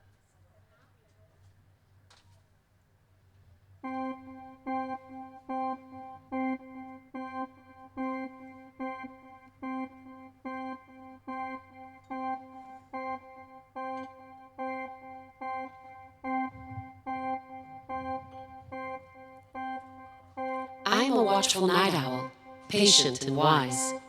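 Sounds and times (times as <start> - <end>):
repeated organ-like note: 3.9 - 24.0.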